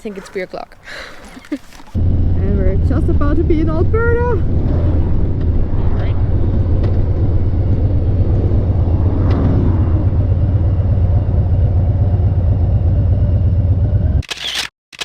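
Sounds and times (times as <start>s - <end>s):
motorcycle engine rumble: 1.3s - 14.2s
wind rush: 1.9s - 13.0s.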